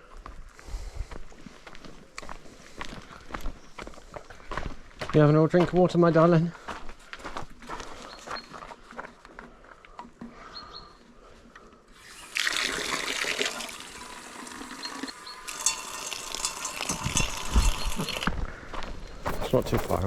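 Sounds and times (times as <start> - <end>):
water running: 12.0 - 18.3.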